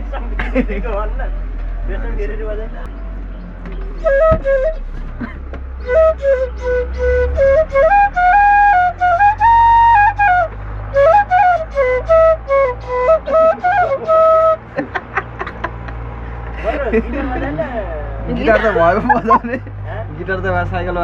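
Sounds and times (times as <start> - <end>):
flute melody: 2.9 - 14.8.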